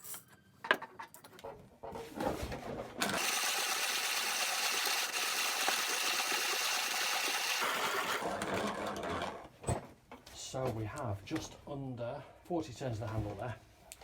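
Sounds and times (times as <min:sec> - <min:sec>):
hand grinder grinding coffee beans: 0:03.0 - 0:09.6.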